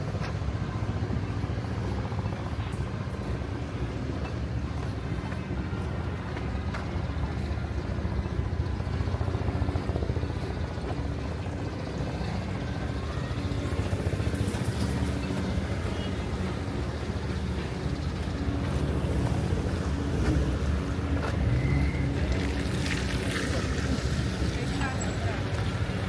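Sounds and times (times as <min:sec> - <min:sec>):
vehicle engine rumble: 0:00.0 - 0:26.0.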